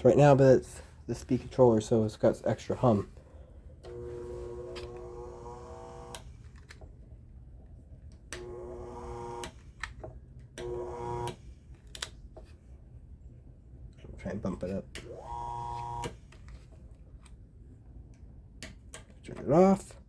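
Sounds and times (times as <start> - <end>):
fan motor humming: 3.8 - 6.4, 8.2 - 9.6, 10.6 - 11.5, 14.9 - 16.2.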